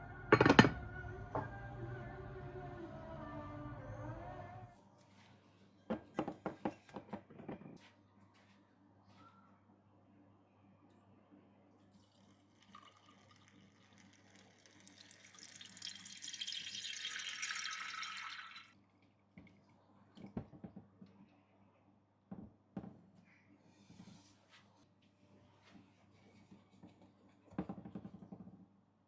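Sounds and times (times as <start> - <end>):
liquid pouring into container: 12.0 - 18.8.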